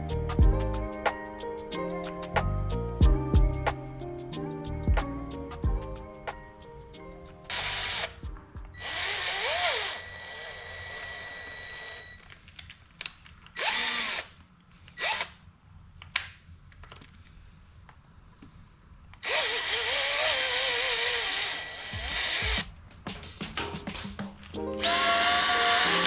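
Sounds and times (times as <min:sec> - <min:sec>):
power tool motor whirring: 0:07.5 - 0:08.2, 0:08.8 - 0:12.1, 0:13.6 - 0:14.3, 0:19.2 - 0:22.6, 0:24.8 - 0:26.0
thin steady whine: 0:09.6 - 0:12.3.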